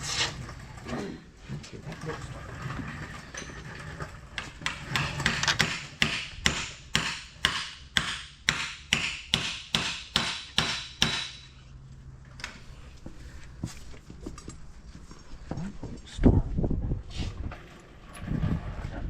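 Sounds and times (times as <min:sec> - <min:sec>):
hammering on metal part: 0:04.6 - 0:11.5.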